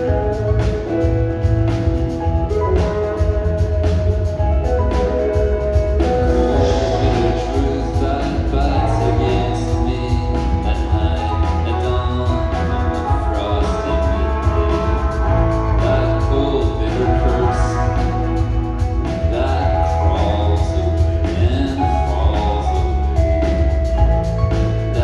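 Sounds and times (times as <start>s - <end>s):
rock band playing live: 0.0s - 25.0s
lead vocal singing: 6.0s - 23.6s.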